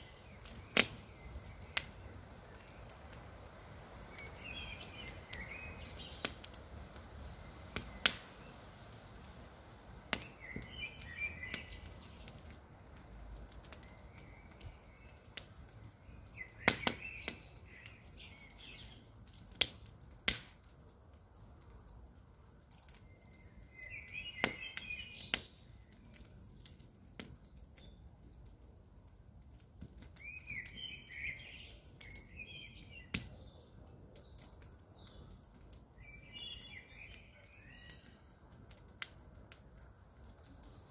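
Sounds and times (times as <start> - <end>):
campfire crackling and popping: 0.0 - 40.9
bird chirping: 10.2 - 12.4, 30.2 - 35.4, 36.0 - 38.5.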